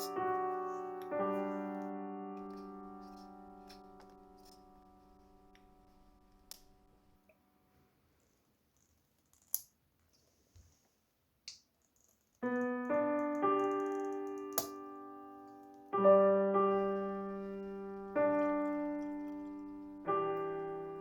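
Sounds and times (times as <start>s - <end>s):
soft piano chords: 0.0s - 7.3s, 12.4s - 21.0s.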